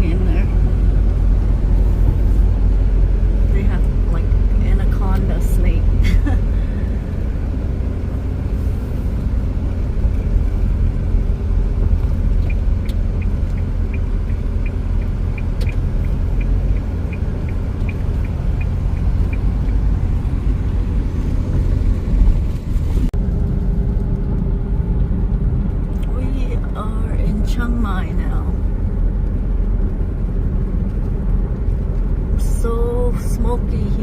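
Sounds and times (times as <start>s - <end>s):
car cabin road rumble: 0.0s - 34.0s
rapid light ticking: 12.0s - 20.4s.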